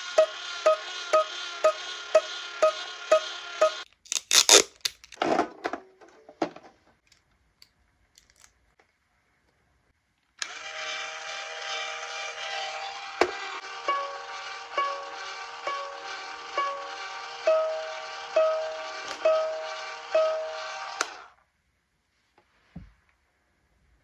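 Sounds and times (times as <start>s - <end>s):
toy guitar held tones: 0.0s - 3.9s, 13.6s - 21.0s.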